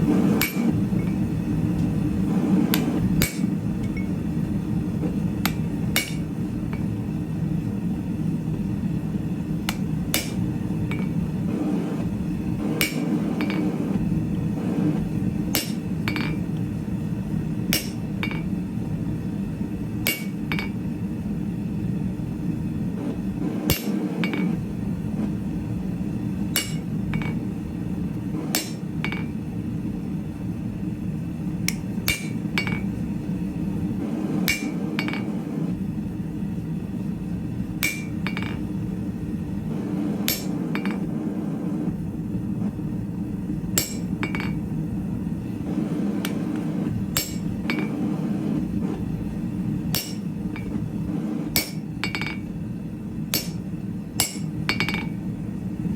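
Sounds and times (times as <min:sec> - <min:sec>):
steady low hum: 0:00.0 - 0:55.9
hammer striking steel on anvil: 0:00.4 - 0:01.3, 0:02.7 - 0:04.1, 0:05.4 - 0:06.9, 0:09.7 - 0:11.2, 0:12.8 - 0:13.8, 0:15.5 - 0:16.4, 0:17.7 - 0:18.5, 0:20.0 - 0:20.8, 0:23.7 - 0:24.6, 0:26.6 - 0:27.4, 0:28.5 - 0:29.4, 0:31.7 - 0:32.9, 0:34.4 - 0:35.4, 0:37.8 - 0:38.7, 0:40.3 - 0:41.1, 0:43.8 - 0:44.6, 0:46.2 - 0:48.1, 0:49.9 - 0:50.8, 0:51.5 - 0:52.5, 0:53.3 - 0:55.2.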